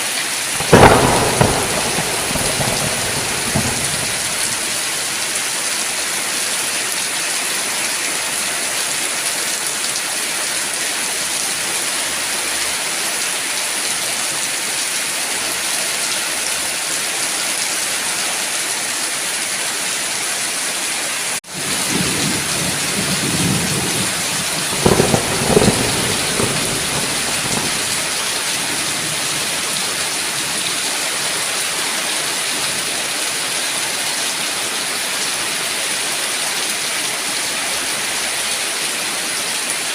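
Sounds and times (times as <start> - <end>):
heavy rain: 0.0 - 39.9
thunder rumbling: 0.6 - 5.4, 21.5 - 30.9.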